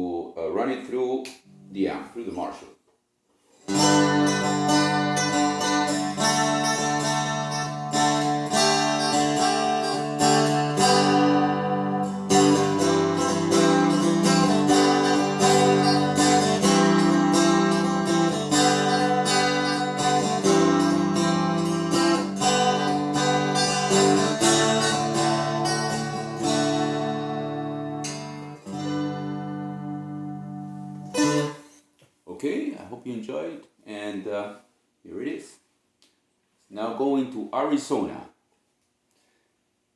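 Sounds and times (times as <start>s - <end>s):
amplified plucked and strummed strings: 3.7s - 31.7s.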